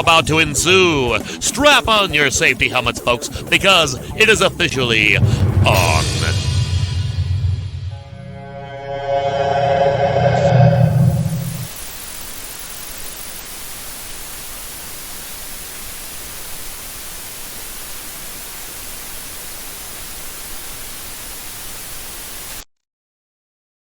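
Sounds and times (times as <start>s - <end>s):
faint high whine: 7.9s - 14.5s
static white noise hiss: 11.8s - 22.6s.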